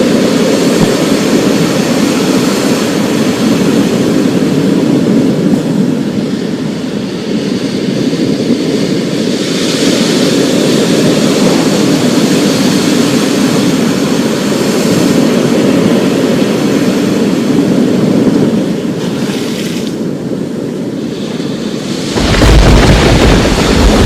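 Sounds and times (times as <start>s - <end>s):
rain hiss: 21.6s - 24.0s
low thunder rumble: 22.1s - 24.0s.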